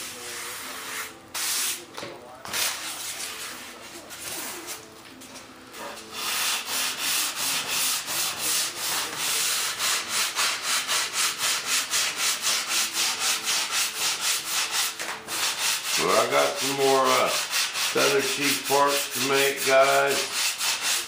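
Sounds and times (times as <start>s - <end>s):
hand sanding strokes: 6.1s - 21.0s.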